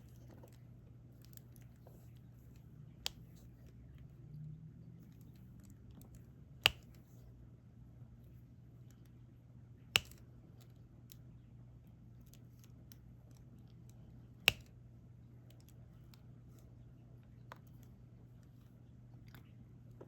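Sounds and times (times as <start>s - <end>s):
low steady hum: 0.0s - 20.0s
pen sharp clicks: 6.6s - 7.0s.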